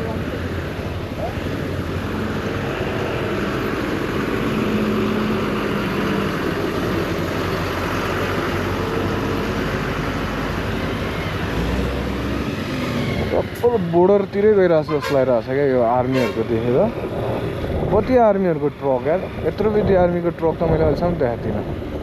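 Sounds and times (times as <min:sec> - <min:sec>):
wind rushing on microphone: 0:12.8 - 0:13.7, 0:16.8 - 0:22.0.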